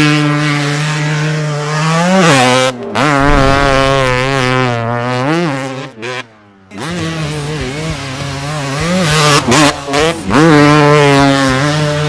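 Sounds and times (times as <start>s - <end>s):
dirt bike engine running: 3.1s - 5.7s.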